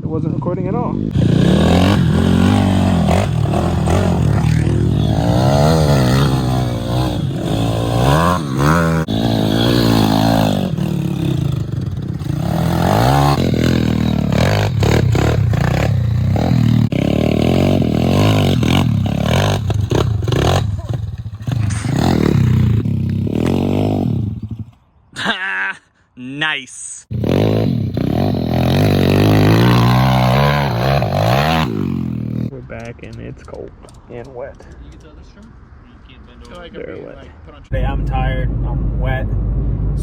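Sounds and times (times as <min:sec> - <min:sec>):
pit bike engine revving: 0:00.9 - 0:24.7, 0:27.1 - 0:32.5.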